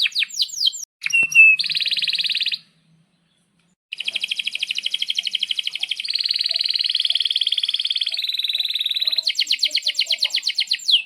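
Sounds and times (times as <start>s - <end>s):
canary singing: 0.0s - 11.0s.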